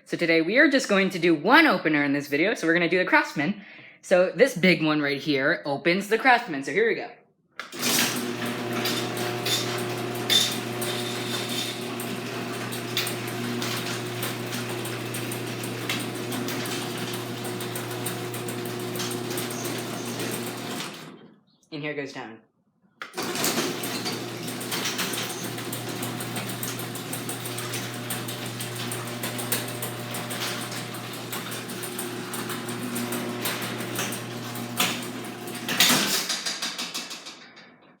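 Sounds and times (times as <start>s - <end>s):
garage door opener motor hum: 7.7s - 21.3s, 23.1s - 36.3s
door clicks and rattles: 23.1s - 38.0s.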